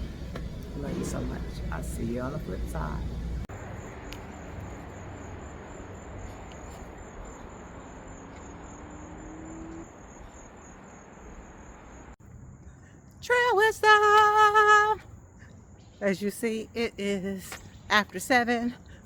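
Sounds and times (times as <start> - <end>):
low steady rumble: 0.0 - 8.0
faint rising hum: 0.0 - 15.8
insects trilling: 2.0 - 19.0.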